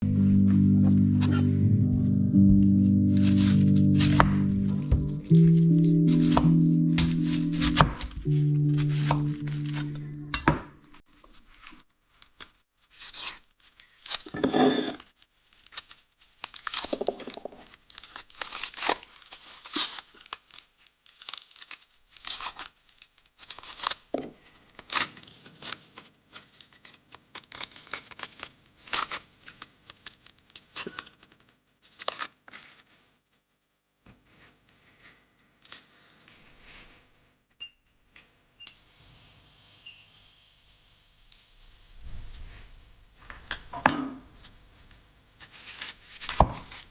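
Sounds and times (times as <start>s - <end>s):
packaging crinkling and tearing: 3.1s - 10.3s, 11.4s - 14.3s, 15.2s - 32.9s.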